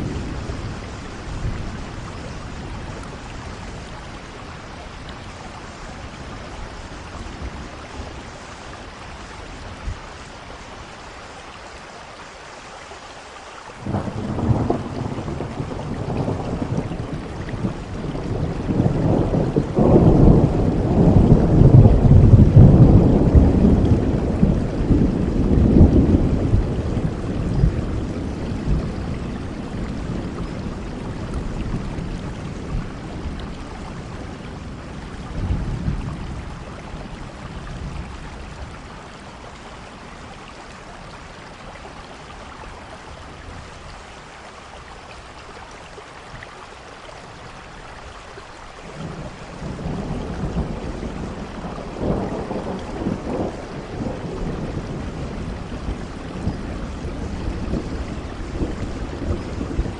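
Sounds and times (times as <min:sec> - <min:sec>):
rolling thunder: 0:00.0 - 0:03.9, 0:13.8 - 0:38.8, 0:48.9 - 0:59.9
steady rain: 0:00.0 - 0:59.9.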